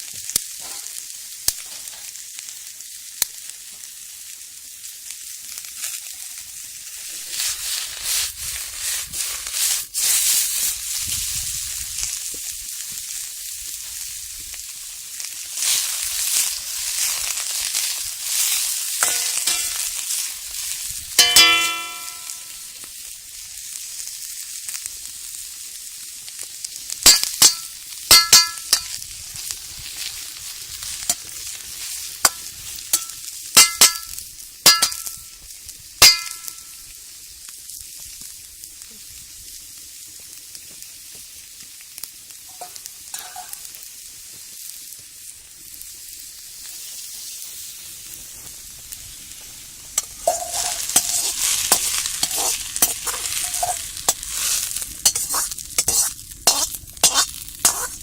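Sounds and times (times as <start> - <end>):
food sizzling in a wok: 0.0 - 58.0
stirring in a wok: 5.8 - 11.6, 13.8 - 22.7, 27.1 - 35.2, 42.5 - 43.8, 49.0 - 58.0
ringing metal clinks: 21.2 - 22.5.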